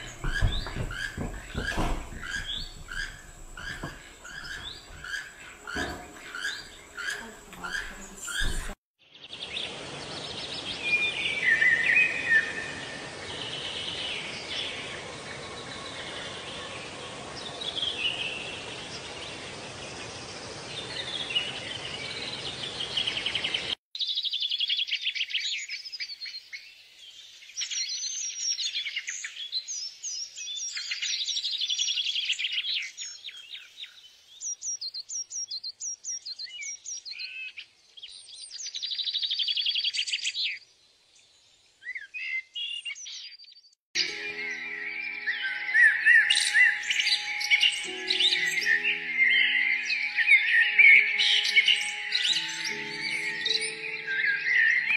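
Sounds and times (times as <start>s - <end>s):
rapid high bird trills: 0.0s - 8.7s
small birds singing: 0.0s - 54.9s.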